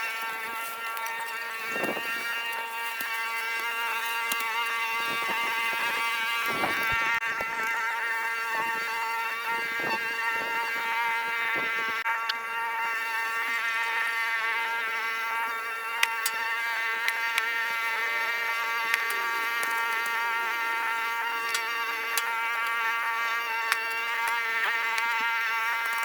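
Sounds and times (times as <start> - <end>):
rustling or scraping noises: 0.0 - 7.0
small motor whining: 0.0 - 26.0.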